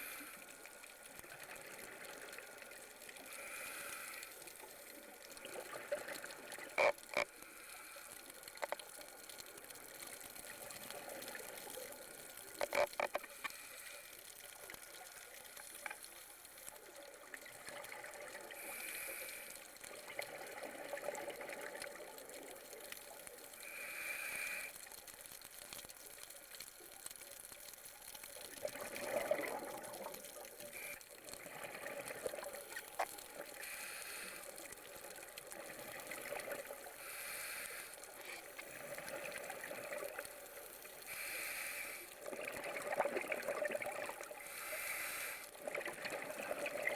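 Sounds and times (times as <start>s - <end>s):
underwater breath bubbling: 0.0s - 8.8s, 17.4s - 22.4s, 23.5s - 24.8s, 28.6s - 46.9s
steady watery hiss: 0.0s - 46.9s.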